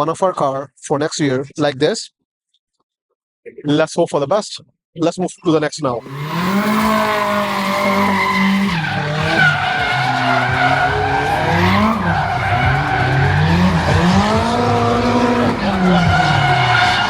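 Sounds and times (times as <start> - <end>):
car engine revving: 6.0 - 17.0
tyres screeching: 6.0 - 17.0.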